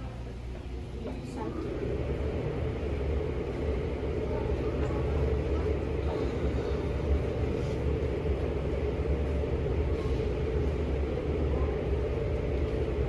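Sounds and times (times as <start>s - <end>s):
low mechanical rumble: 0.0s - 13.0s.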